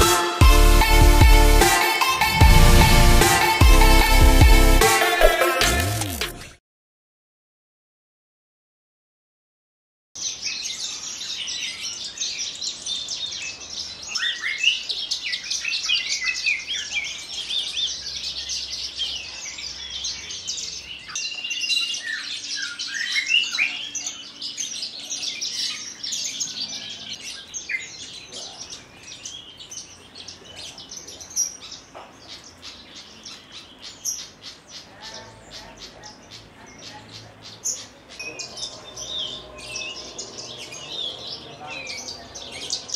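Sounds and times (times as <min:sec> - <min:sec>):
bird singing chirps and trills: 0:10.2 - 0:42.9.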